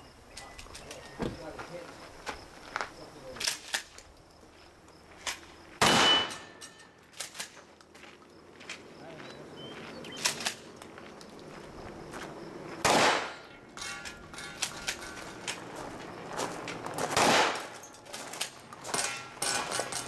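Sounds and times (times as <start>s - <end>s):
shotgun shots: 5.8s - 6.6s, 12.8s - 13.5s, 17.1s - 17.8s
light metallic clanks and clicks: 6.2s - 7.9s, 13.5s - 15.6s, 17.7s - 20.0s.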